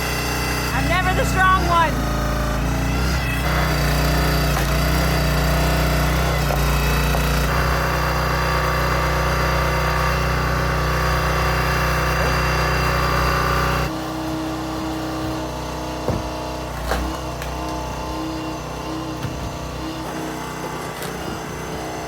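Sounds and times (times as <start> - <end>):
small gasoline engine running: 0.0 - 22.0
sharp knocks: 16.0 - 17.2.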